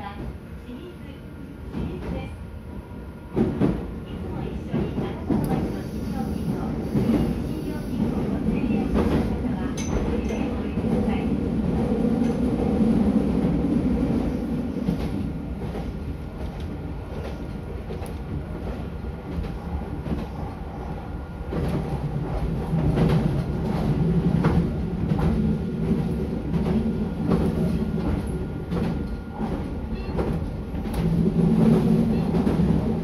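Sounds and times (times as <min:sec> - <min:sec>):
train wheels rumbling on rails: 0:00.0 - 0:02.4, 0:03.2 - 0:33.0
clacks over rail joints: 0:21.5 - 0:32.9.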